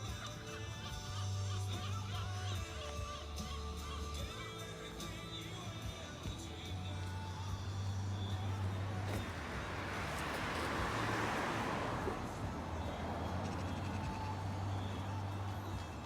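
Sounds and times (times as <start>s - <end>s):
passing vehicle road noise: 5.8s - 16.0s.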